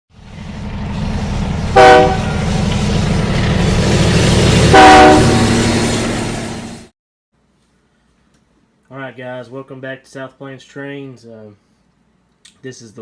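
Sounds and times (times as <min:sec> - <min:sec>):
train rumble: 0:00.1 - 0:06.9
locomotive horn blasts: 0:01.7 - 0:02.5, 0:04.7 - 0:05.7.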